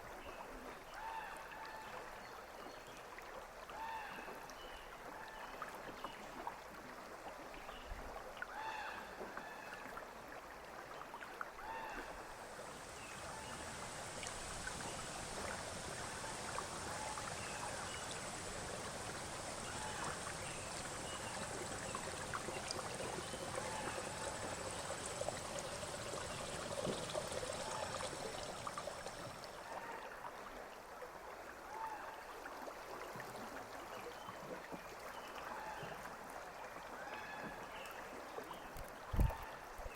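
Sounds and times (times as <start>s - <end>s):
river water flowing: 0.1s - 39.9s
hiss of moving water: 11.6s - 29.9s.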